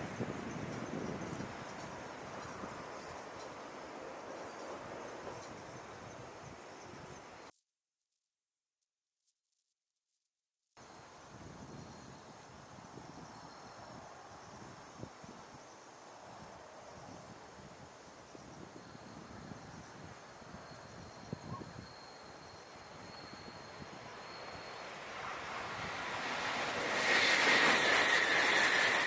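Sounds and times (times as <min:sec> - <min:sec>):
approaching bullet train rush: 0:00.0 - 0:07.4, 0:22.2 - 0:29.0
outdoor background noise: 0:00.0 - 0:07.5, 0:10.8 - 0:29.0
insect trill: 0:20.8 - 0:29.0.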